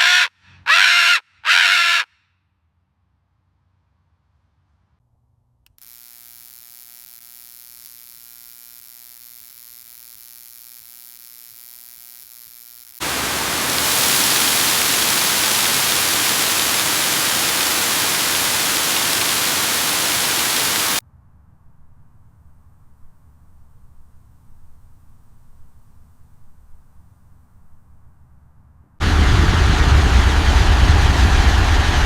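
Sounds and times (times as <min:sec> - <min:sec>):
static hiss: 0:05.9 - 0:21.0
electrical buzz: 0:13.0 - 0:21.0.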